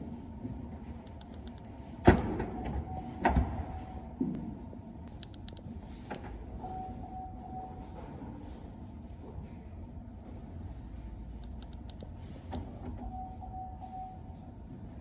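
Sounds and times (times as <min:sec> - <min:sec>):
clicking: 0:01.1 - 0:01.7, 0:05.1 - 0:05.6, 0:11.4 - 0:12.1
short warning beeps: 0:13.1 - 0:14.4.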